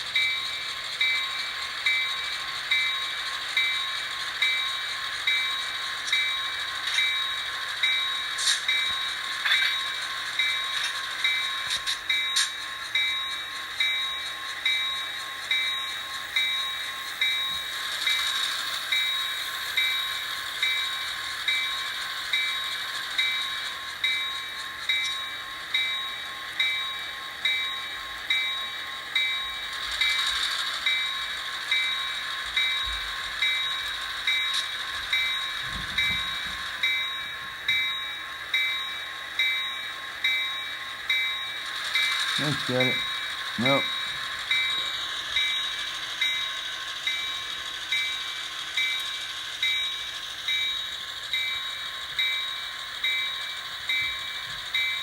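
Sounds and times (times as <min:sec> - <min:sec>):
model locomotive bell clanging: 0:00.0 - 0:55.0.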